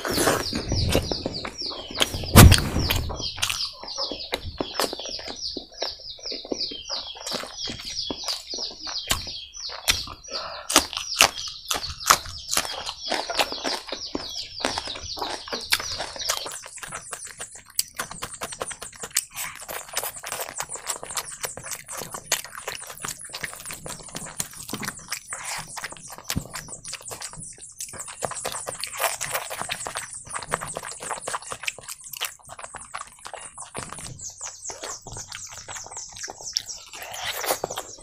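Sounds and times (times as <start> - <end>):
man chewing food: 0.0 - 38.0.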